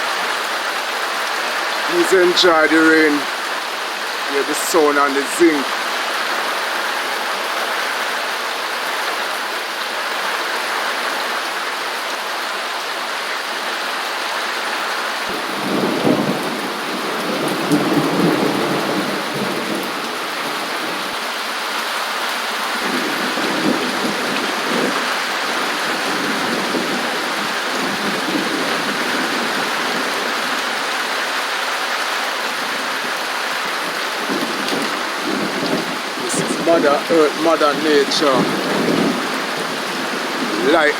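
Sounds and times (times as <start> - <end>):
rain on a metal roof: 0.0 - 40.9
thunder rumbling: 15.3 - 21.1, 34.2 - 40.9.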